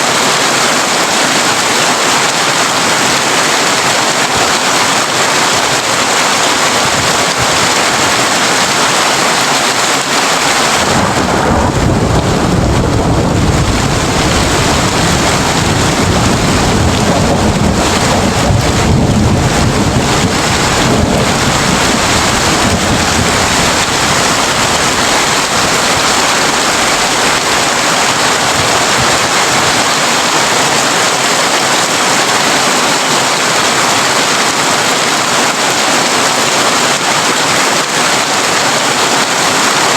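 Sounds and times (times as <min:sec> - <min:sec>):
heavy rain on a tin roof: 0:00.0 - 0:39.9
low thunder roll: 0:10.7 - 0:27.6.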